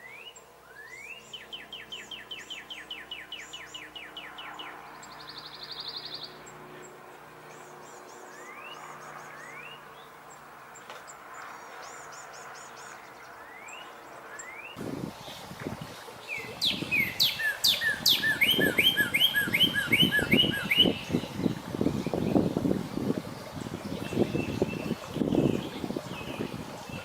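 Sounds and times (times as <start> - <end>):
low rumbling background noise: 0.0 - 27.0
songbirds chirping and twittering: 0.0 - 27.0
bird whistling and singing: 16.3 - 22.5.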